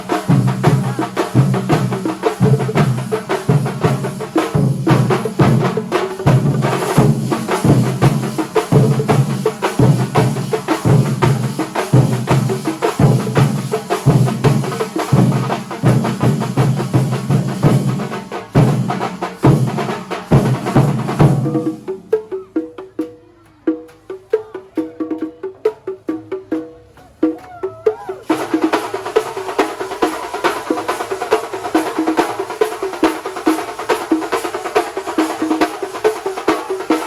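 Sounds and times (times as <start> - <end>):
deep drum beats: 0.0 - 22.8.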